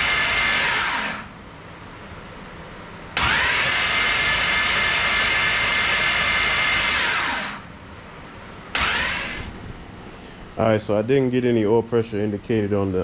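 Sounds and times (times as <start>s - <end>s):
starter motor cranking engine: 0.0s - 1.2s, 3.2s - 7.6s, 8.7s - 9.6s.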